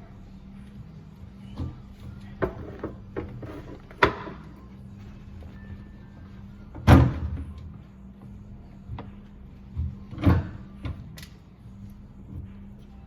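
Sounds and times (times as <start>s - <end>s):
faint steady hum: 0.0s - 13.0s
knocks and clunks: 1.5s - 4.6s, 6.7s - 7.7s.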